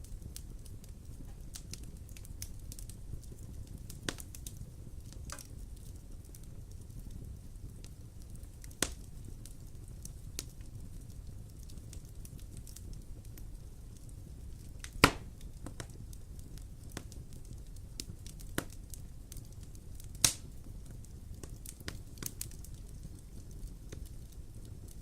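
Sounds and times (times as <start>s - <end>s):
low rumble of fire: 0.0s - 25.0s
wood fire crackling: 0.0s - 25.0s
lighter fire snaps: 14.8s - 15.8s, 20.2s - 20.5s
loud sharp fire pops: 14.8s - 16.0s.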